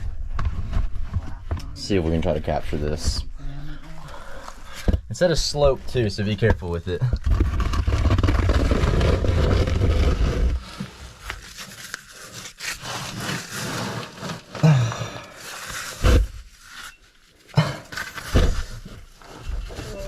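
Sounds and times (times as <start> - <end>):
clothing and gear scraping rock: 5.4 - 17.0.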